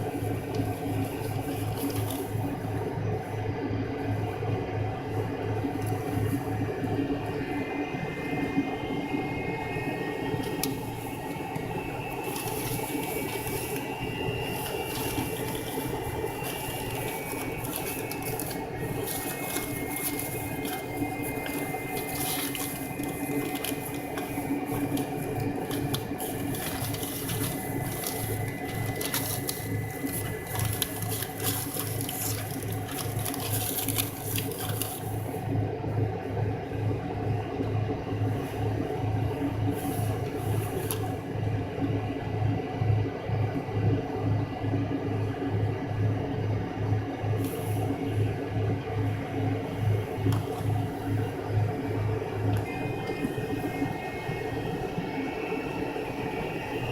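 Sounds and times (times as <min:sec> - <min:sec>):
low regular pulsing: 0:00.0 - 0:40.3
airliner cabin engine whine: 0:00.0 - 0:56.9.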